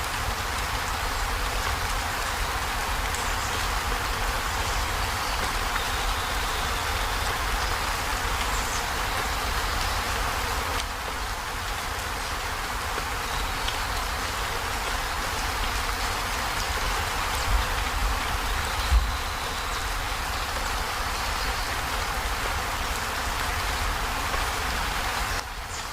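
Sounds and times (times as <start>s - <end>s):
heavy rain on a metal roof: 0.0s - 25.9s.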